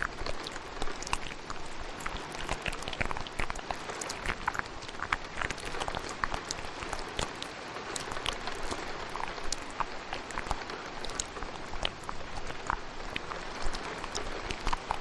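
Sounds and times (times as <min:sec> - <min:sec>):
wet mouth clicks and pops: 0:00.0 - 0:15.0.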